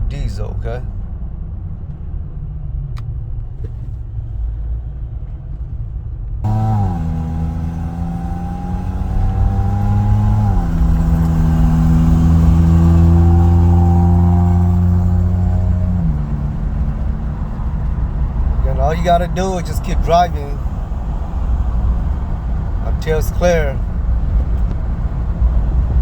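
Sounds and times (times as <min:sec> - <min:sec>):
road noise: 0:00.0 - 0:26.0
car engine accelerating: 0:06.4 - 0:26.0.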